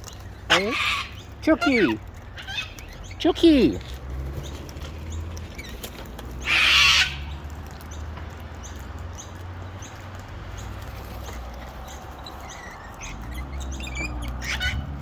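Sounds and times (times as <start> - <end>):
cockatoo screech: 0.5 - 2.8, 6.4 - 7.2.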